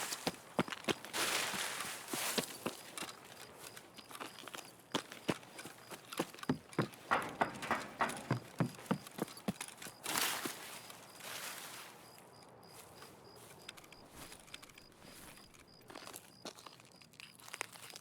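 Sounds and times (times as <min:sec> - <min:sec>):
light knocks or clicks: 0:06.4 - 0:09.8.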